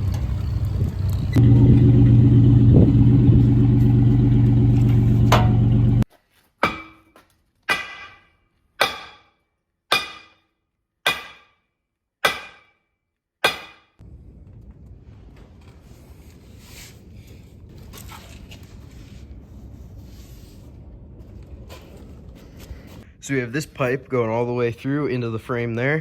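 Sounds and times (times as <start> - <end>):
low background rumble: 0.0 - 6.0, 14.0 - 23.2
ringing metallic strikes: 5.2 - 6.0.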